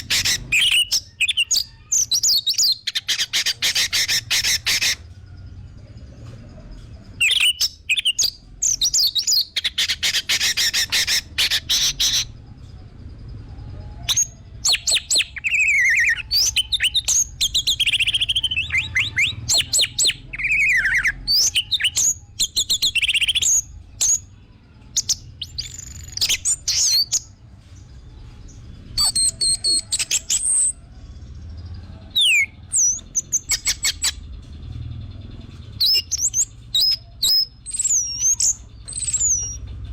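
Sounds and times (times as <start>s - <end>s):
thrush singing: 7.1s - 39.9s.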